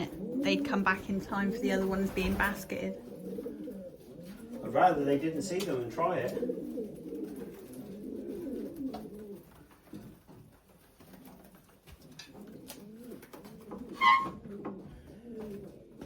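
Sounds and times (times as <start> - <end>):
pigeons cooing: 0.0 - 16.0
loud high-pitched squeak: 13.9 - 14.4.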